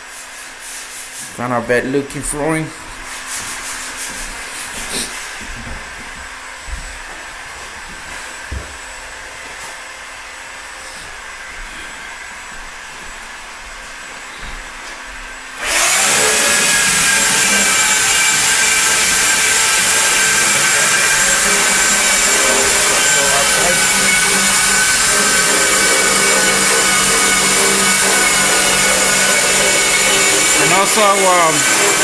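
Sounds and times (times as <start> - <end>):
electric motor whining: 15.6 - 32.0.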